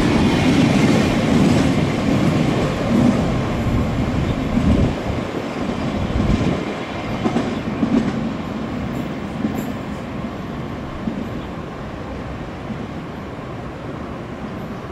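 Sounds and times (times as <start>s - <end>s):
freight train rolling past: 0.0s - 14.9s.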